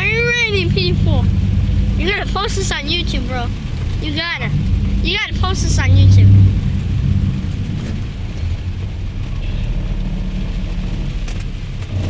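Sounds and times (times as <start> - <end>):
car engine low rumble: 0.0 - 12.0.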